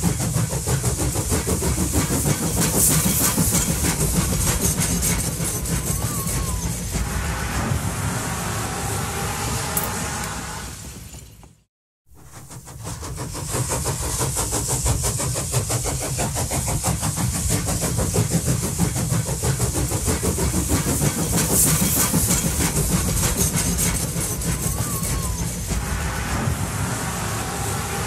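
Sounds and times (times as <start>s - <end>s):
train running on track: 0.0s - 28.0s.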